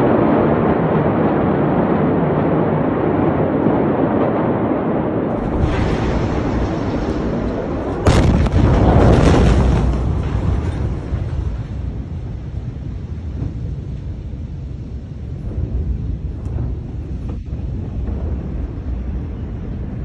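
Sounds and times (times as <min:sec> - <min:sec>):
explosion boom: 0:05.2 - 0:20.0.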